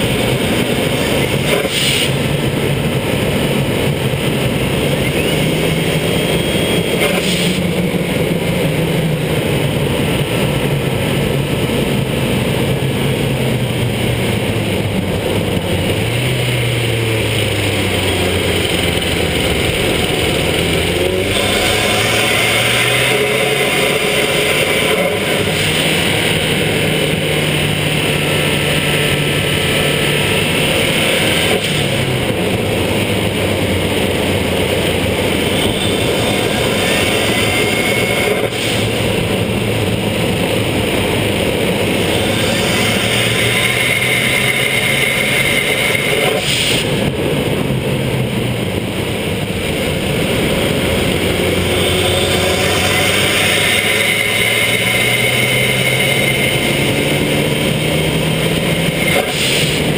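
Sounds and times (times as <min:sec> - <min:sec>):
car engine accelerating: 0:00.0 - 0:59.9
tyres hissing on wet road: 0:01.5 - 0:02.4, 0:07.0 - 0:07.8, 0:35.4 - 0:47.5, 0:50.1 - 0:59.9
turbo whistle: 0:05.0 - 0:07.6.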